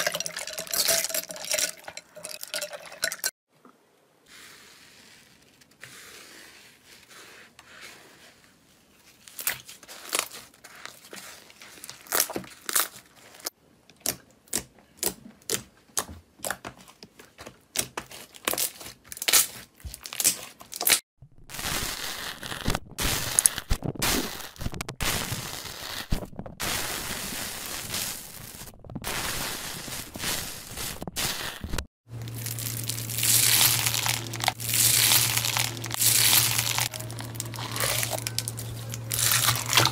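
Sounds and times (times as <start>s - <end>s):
slime squishing and crackling: 17.7s - 26.9s, 27.8s - 39.9s.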